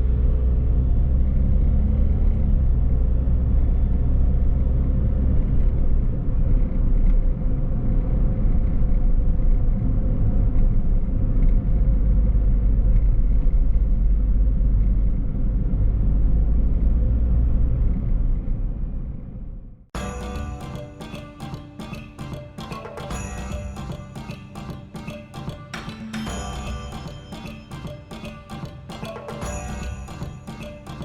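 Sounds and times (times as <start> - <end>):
car road and engine rumble: 0.0 - 19.8.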